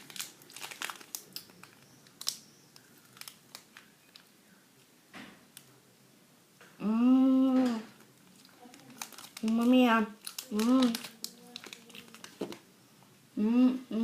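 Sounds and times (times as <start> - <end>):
snack wrapper crinkling: 0.0 - 4.3, 8.1 - 12.6.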